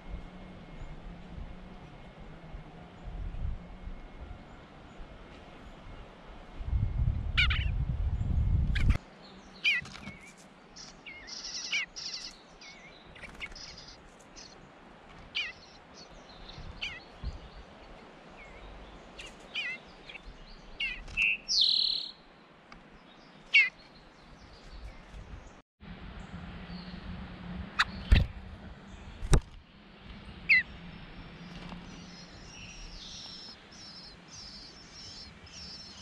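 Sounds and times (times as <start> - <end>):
small songbirds chirping: 6.9 - 25.6, 26.2 - 27.2, 27.8 - 36.0.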